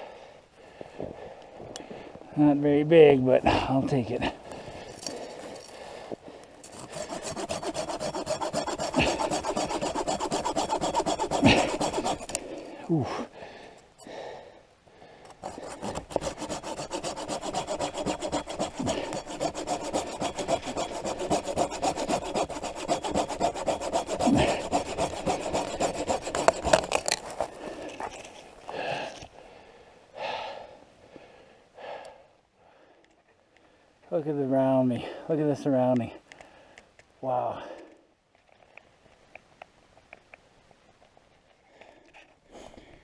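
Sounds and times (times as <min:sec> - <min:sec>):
hand saw cutting wood: 0:06.6 - 0:13.0, 0:15.3 - 0:28.4
rustling or crunching: 0:24.2 - 0:29.4.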